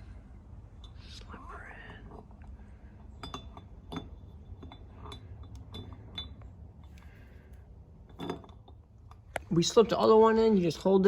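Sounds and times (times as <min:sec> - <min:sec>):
metal engine parts clinking: 0:03.0 - 0:09.2.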